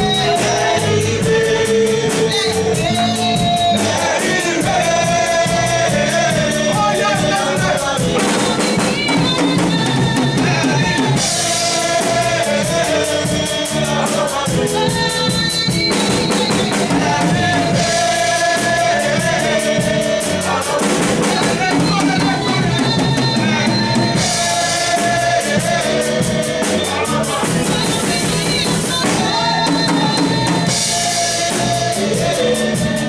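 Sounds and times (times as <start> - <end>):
person singing: 0.0 - 15.9
drum kit beat: 0.0 - 33.0.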